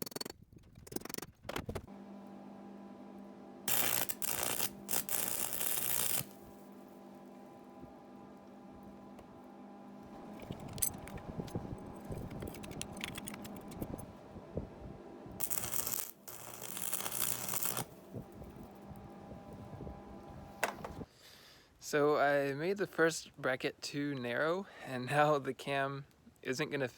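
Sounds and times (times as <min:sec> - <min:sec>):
steady electrical hum: 0:01.9 - 0:21.1.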